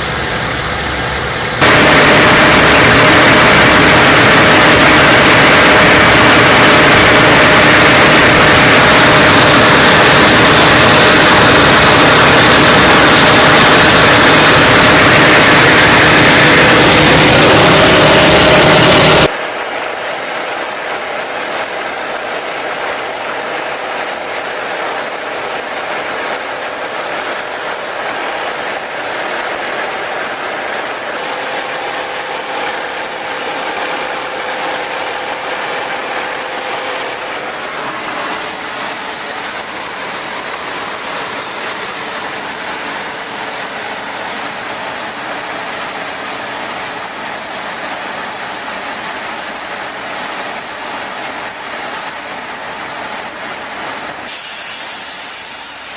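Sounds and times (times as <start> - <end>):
radial piston engine running: 0.0 - 19.3, 20.0 - 41.1.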